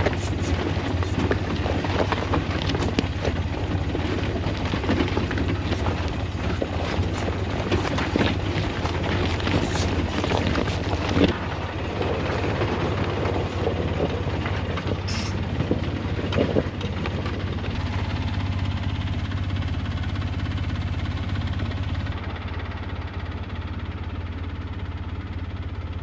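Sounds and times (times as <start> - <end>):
knocks and rattles: 0.0 - 18.1
utility vehicle engine running: 0.0 - 26.0.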